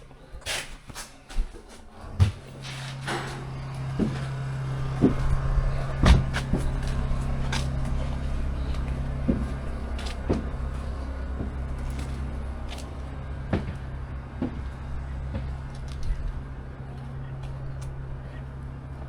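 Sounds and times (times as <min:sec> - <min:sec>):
motor humming: 0:01.9 - 0:19.0
sharp clunks and knocks: 0:06.0 - 0:07.0.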